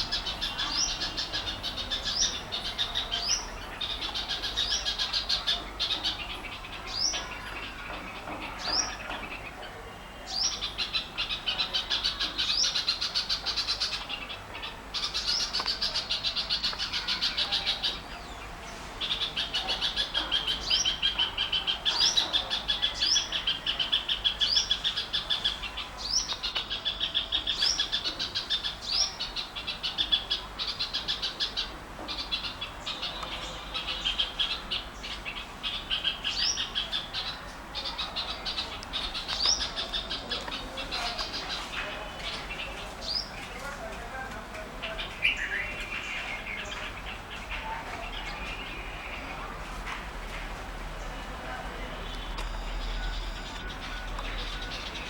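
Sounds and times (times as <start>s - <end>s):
small birds chirping chatter: 0.0s - 55.0s.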